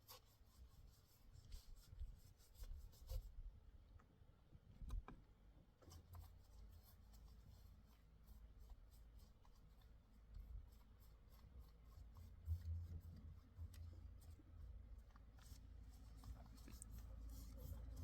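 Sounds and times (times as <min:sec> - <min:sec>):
faint scratching with ticks: 0:05.8 - 0:18.0.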